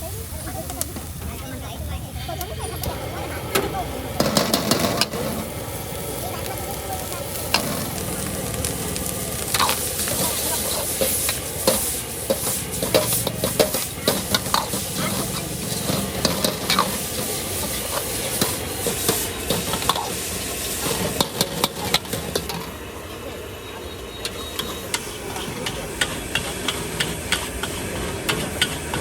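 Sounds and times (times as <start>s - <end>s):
food sizzling in a wok: 0.0s - 29.0s
metal ladle scraping wok: 2.3s - 5.6s, 7.0s - 22.7s.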